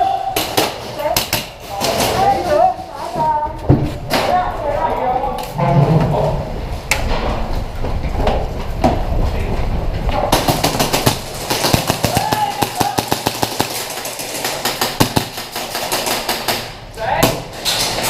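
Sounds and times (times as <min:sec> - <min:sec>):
low rumble of movement: 0:03.3 - 0:11.5
airsoft guns firing: 0:10.3 - 0:17.5.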